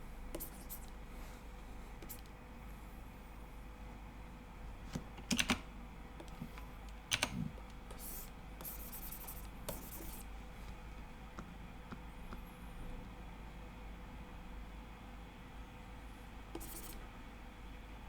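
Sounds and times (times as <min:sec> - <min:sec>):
computer keyboard keys clicking: 0:05.2 - 0:05.6, 0:06.2 - 0:10.2.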